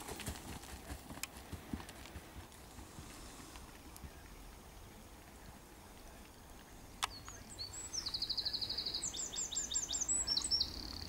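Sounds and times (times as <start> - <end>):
songbird singing: 2.2 - 11.0.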